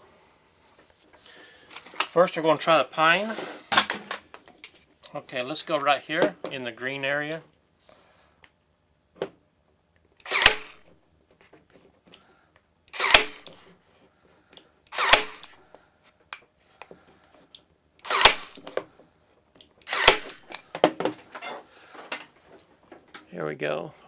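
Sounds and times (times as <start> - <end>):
nail gun firing into wood: 10.2 - 10.9, 12.9 - 13.6, 14.9 - 15.6, 18.0 - 18.8, 19.9 - 21.0.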